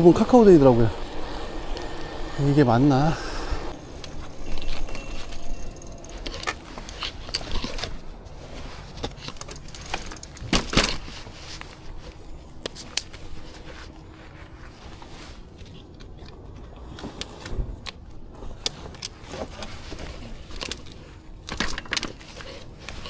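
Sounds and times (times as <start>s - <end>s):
bicycle road and wind rumble: 0.0s - 23.0s
bicycle clicks and rattles: 3.7s - 13.8s, 17.2s - 23.0s.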